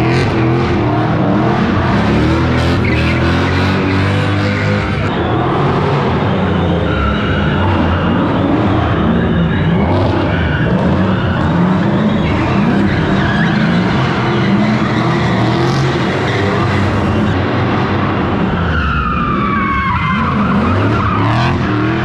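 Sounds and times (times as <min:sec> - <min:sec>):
car engines revving: 0:00.0 - 0:22.0
tyres skidding and squealing: 0:00.0 - 0:22.0.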